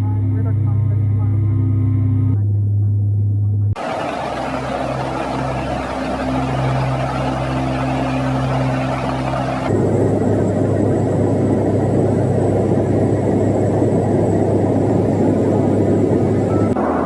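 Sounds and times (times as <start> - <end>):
faint high whine: 3.8 - 11.3, 14.4 - 17.0
aircraft engines droning: 3.8 - 17.0.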